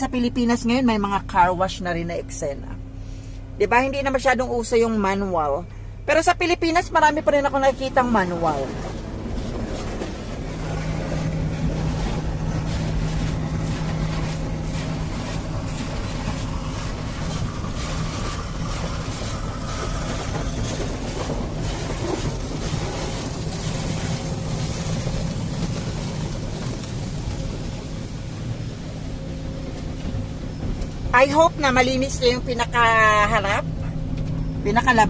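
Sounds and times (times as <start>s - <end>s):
car wash machine hum: 0.0s - 35.0s
spraying and scrubbing on car: 7.9s - 32.4s.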